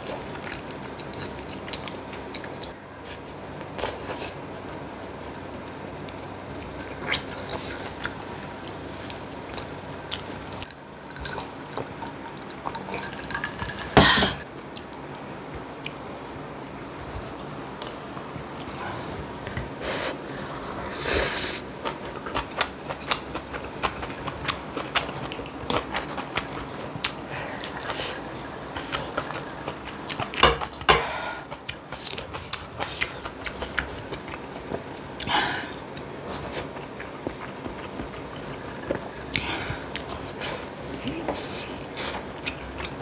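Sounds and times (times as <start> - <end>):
chewing and biting food: 0.0 - 2.8, 21.8 - 30.9, 31.5 - 40.8, 41.9 - 43.0.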